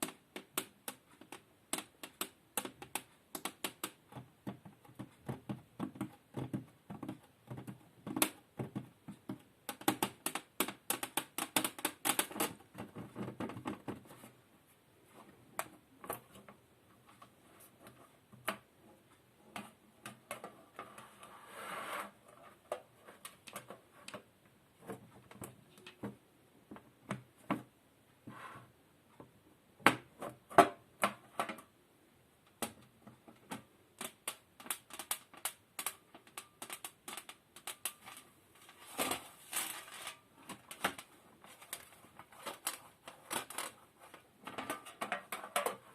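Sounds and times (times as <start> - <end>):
scratchy rustle: 20.8 - 23.3.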